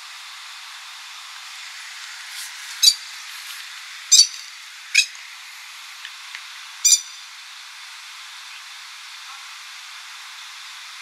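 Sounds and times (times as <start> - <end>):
steady hiss: 0.0 - 11.0
sharp bird calls: 2.8 - 3.1, 6.8 - 7.2.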